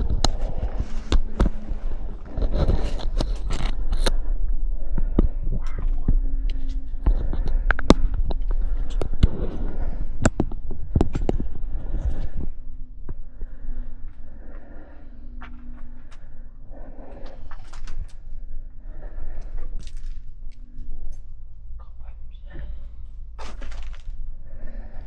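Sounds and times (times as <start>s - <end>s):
steady low rumble: 0.0s - 25.0s
sharp clicks and knocks: 5.0s - 12.3s.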